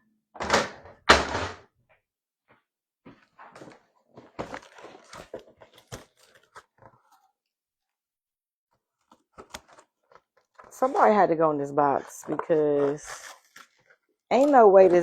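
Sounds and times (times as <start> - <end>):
packaging crinkling and rustling: 3.5 - 7.3, 8.9 - 15.0.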